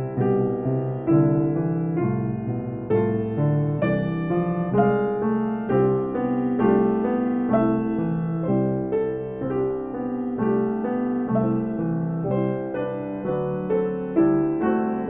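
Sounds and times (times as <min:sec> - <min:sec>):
piano playing: 0:00.0 - 0:15.0.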